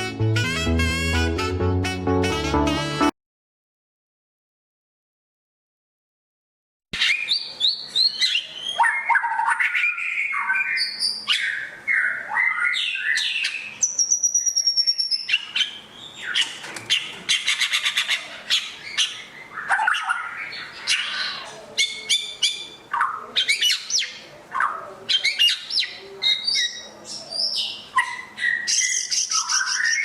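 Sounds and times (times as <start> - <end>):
songbird singing: 7.0 - 30.0.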